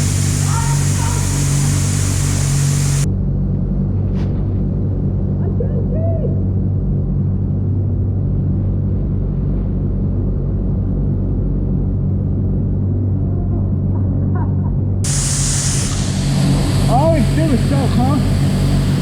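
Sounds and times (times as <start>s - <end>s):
loud hiss: 0.0s - 3.1s, 15.0s - 19.0s
motorcycle engine idling: 0.0s - 3.1s, 15.0s - 19.0s.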